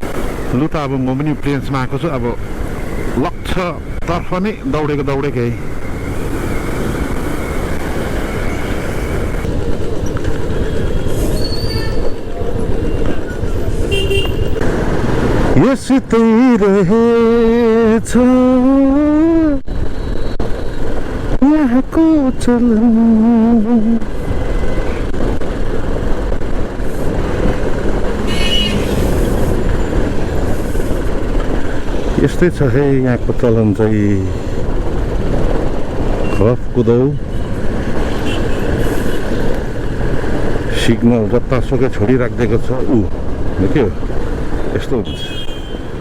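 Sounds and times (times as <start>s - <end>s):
motorcycle road noise: 0.0s - 46.0s
wind rush: 24.0s - 44.8s.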